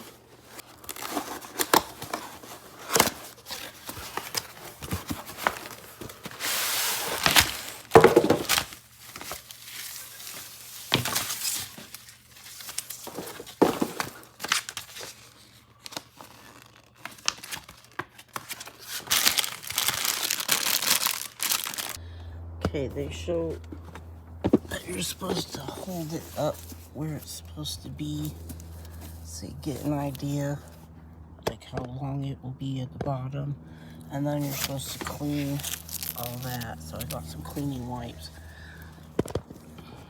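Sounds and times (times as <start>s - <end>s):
packaging crinkling and tearing: 0.0s - 22.0s, 34.4s - 39.7s.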